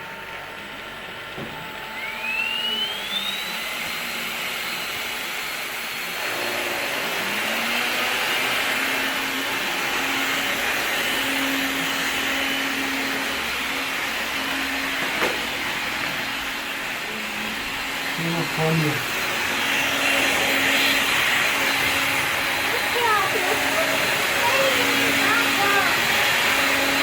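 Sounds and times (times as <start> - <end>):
stick vacuum motors hissing: 1.4 - 27.0
high whine rising in pitch: 1.8 - 5.2, 9.3 - 27.0.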